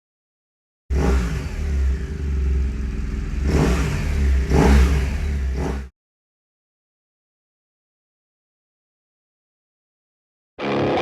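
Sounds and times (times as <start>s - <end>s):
motorcycle engine revving: 0.9s - 5.9s.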